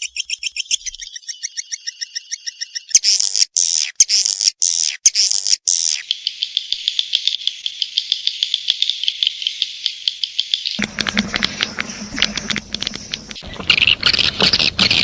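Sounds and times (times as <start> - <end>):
swiftlet twittering chirps: 10.8 - 15.0.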